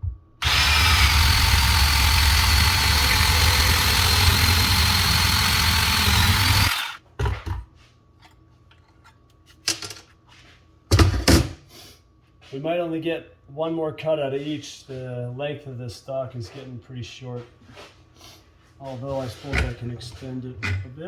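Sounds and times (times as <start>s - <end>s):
bandsaw cutting pipe: 0.4s - 7.0s.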